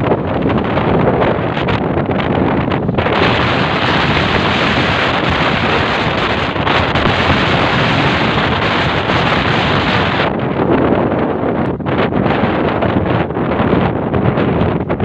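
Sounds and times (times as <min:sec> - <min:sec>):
heavy rain and wind rushing: 0:00.0 - 0:15.0
wind buffeting microphone: 0:00.0 - 0:15.0.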